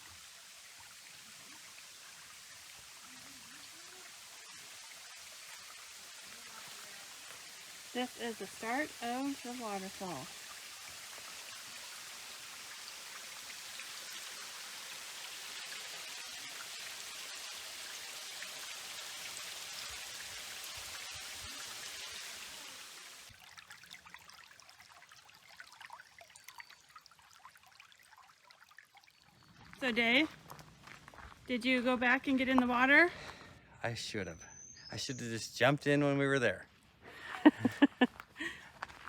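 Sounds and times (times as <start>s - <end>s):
waterfall rushing: 7.9s - 10.4s.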